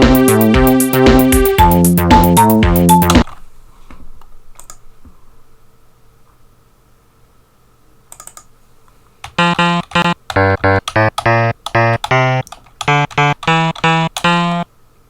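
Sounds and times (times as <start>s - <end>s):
keyboard clicks: 4.6s - 4.8s, 8.1s - 8.5s, 9.2s - 14.6s.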